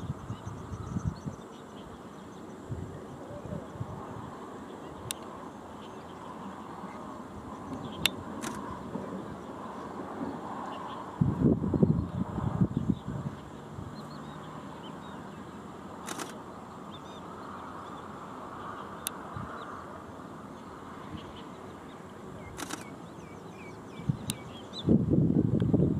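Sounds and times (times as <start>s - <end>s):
outdoor background noise: 0.0s - 25.9s
sharp clicks: 7.7s - 8.6s, 16.0s - 16.4s, 22.6s - 23.0s.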